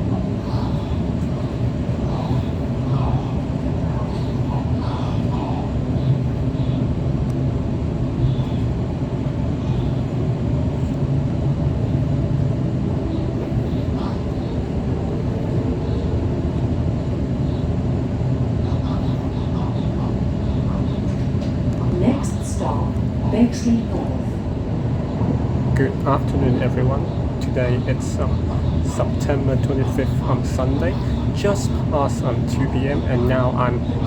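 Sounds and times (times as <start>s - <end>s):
faint voices: 18.3s - 34.0s.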